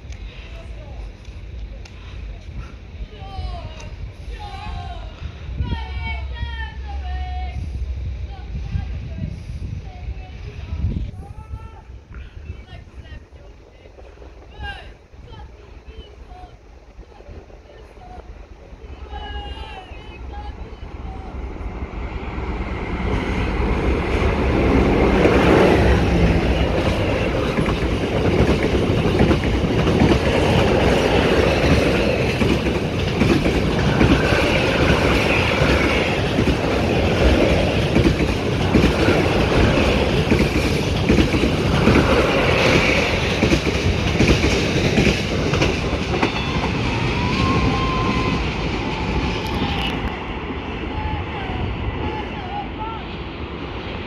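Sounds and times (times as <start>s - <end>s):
train wheels clattering over rail joints: 24.3s - 49.6s.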